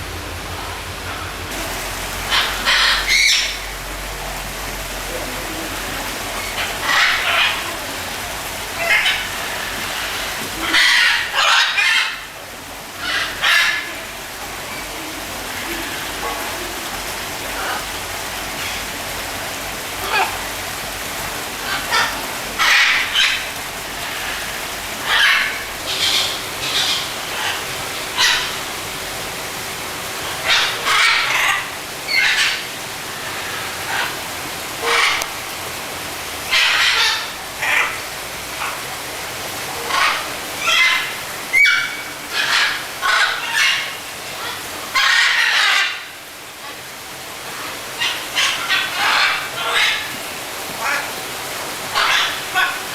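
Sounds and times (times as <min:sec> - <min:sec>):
bird squawking: 0:02.2 - 0:03.8, 0:06.4 - 0:07.9, 0:25.0 - 0:28.7, 0:30.4 - 0:32.7.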